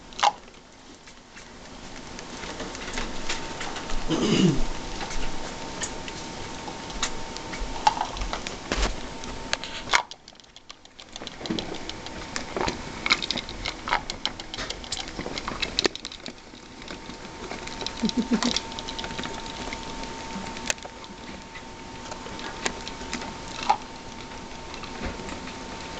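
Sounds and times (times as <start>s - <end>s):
rats moving about a cage: 0.0s - 25.9s
small clicks taps and rattles: 4.9s - 25.9s.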